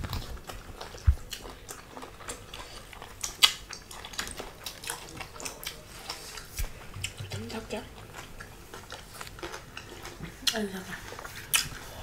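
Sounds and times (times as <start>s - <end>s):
people chewing food: 0.0s - 12.0s
mouth and teeth clicks: 11.5s - 11.8s.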